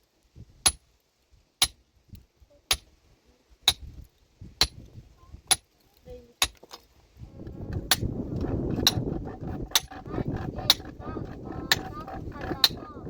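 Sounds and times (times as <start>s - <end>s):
metal tool striking rock: 0.6s - 0.8s, 1.6s - 1.8s, 3.7s - 3.9s, 4.6s - 4.9s, 5.5s - 5.7s, 6.4s - 6.8s, 7.7s - 12.9s.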